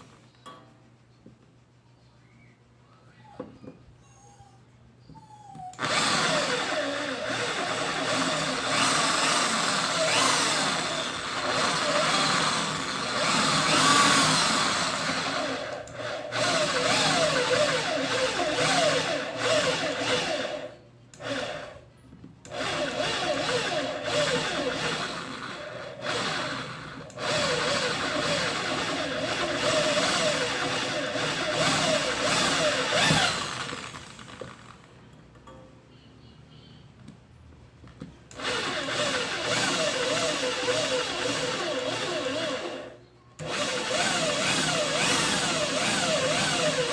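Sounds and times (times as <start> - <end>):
drill press drilling metal: 38.4 - 46.9.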